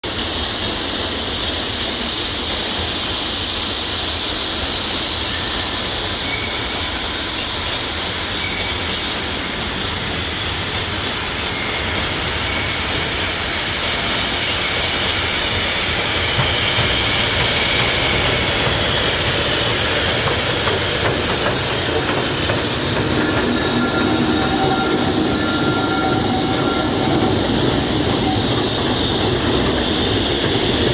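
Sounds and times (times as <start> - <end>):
train wheels rolling on track: 0.0 - 30.9
high wheel squeals: 4.4 - 30.9.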